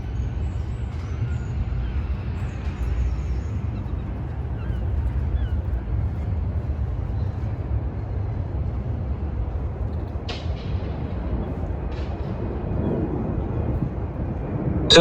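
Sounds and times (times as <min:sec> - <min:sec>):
low city rumble: 0:00.0 - 0:15.0.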